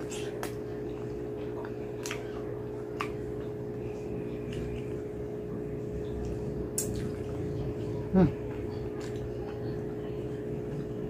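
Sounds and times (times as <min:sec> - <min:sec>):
low hum: 0:00.0 - 0:11.0
wet mouth smacks and clicks: 0:06.7 - 0:07.2.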